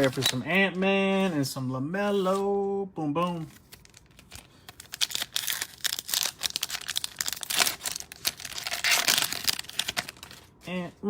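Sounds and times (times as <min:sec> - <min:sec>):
plastic wrapper crinkling and tearing: 0:00.0 - 0:00.6, 0:03.4 - 0:10.7.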